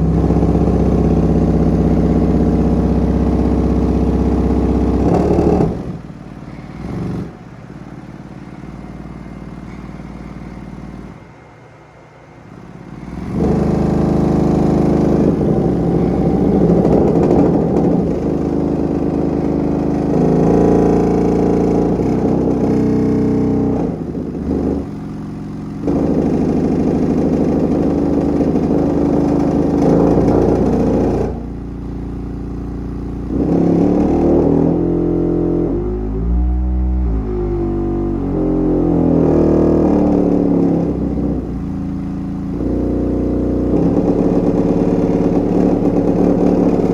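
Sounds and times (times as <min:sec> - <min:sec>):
subwoofer rough low tone: 0:00.0 - 0:07.4, 0:12.6 - 0:46.9.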